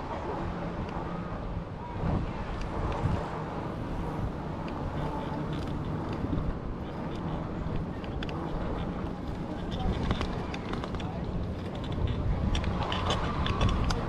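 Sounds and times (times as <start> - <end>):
wind buffeting microphone: 0.0 - 14.0
faint clicks: 4.6 - 14.0.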